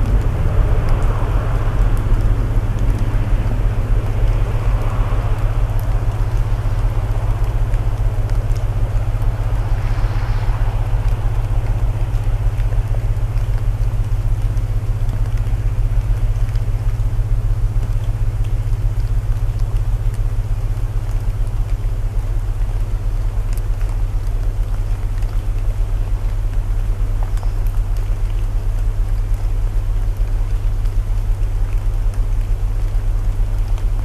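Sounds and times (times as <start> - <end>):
low binaural tone hum: 0.0 - 24.0
wood fire crackling: 0.0 - 25.4
rain hiss: 0.0 - 34.0.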